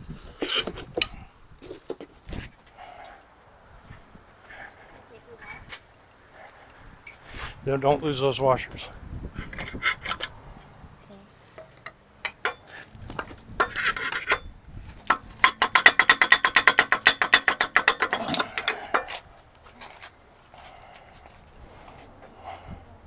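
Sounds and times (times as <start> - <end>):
metal tools clinking and rattling: 9.4 - 20.2.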